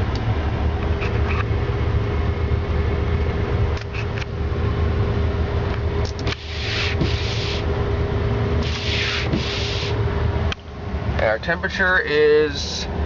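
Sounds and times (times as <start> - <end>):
truck engine idling: 4.3 - 12.8
short bursts of hiss: 6.3 - 7.7, 8.6 - 10.0.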